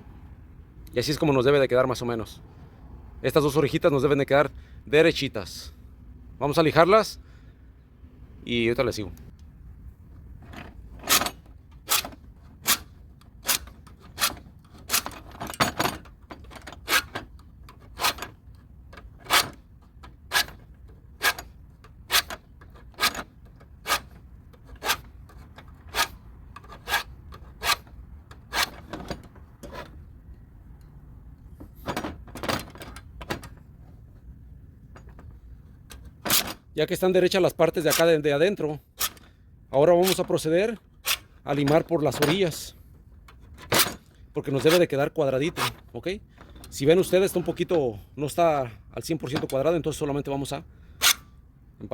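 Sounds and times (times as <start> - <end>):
hand file rasping on metal: 25.8 - 28.9.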